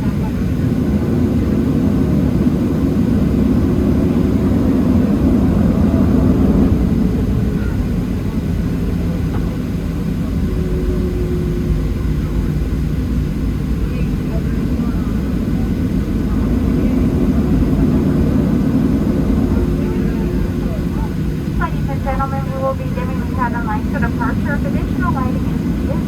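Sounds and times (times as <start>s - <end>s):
jet engine cabin rumble: 0.0s - 26.0s.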